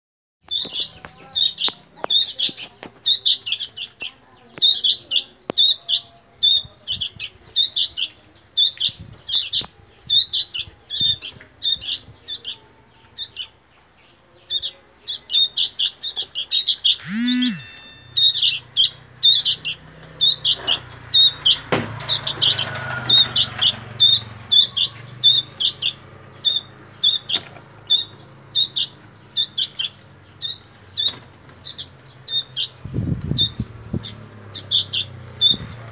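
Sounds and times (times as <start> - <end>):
bird chick begging chirps: 14.4 - 35.8.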